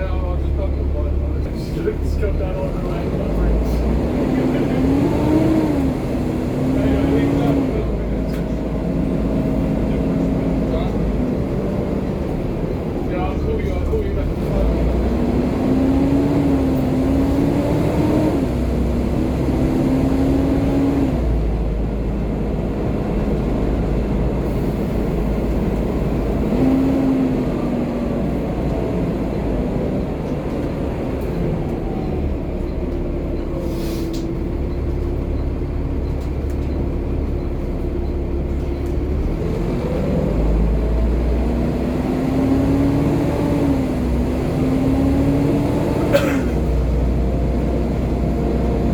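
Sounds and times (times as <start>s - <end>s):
bus diesel engine running: 0.0s - 48.9s
short air hiss: 33.6s - 34.2s.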